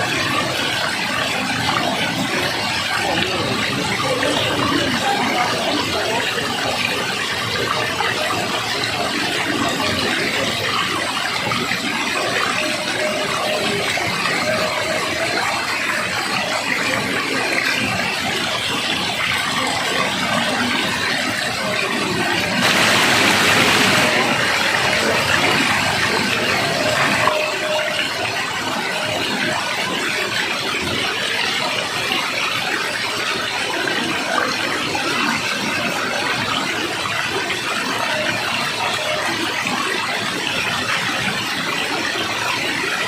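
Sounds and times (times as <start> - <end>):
rushing water: 0.0 - 43.0.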